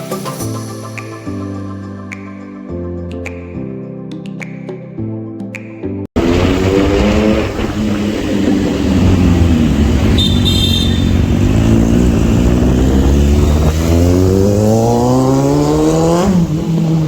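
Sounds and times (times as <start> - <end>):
motorcycle engine revving: 6.2 - 17.0.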